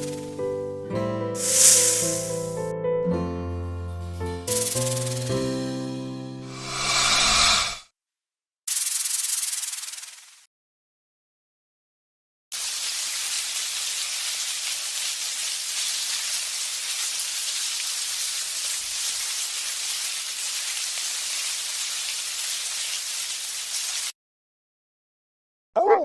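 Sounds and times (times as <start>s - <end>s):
steady hiss: 1.4s - 2.4s, 6.5s - 7.8s.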